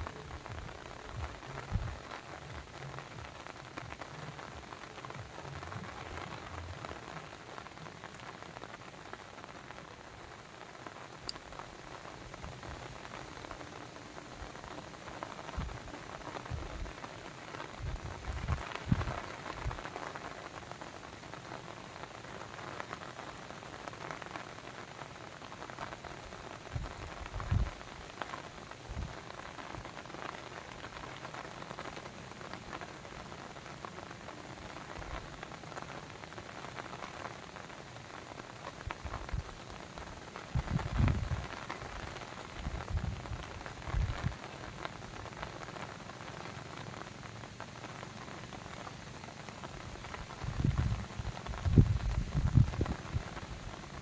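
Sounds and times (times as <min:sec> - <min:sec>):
water pattering and rushing: 0:00.0 - 0:10.5.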